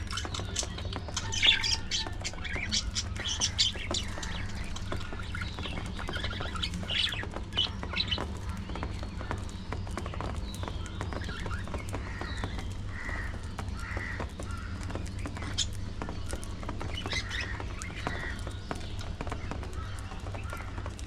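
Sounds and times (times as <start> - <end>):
budgerigars chattering and squawking: 0.0 - 20.9.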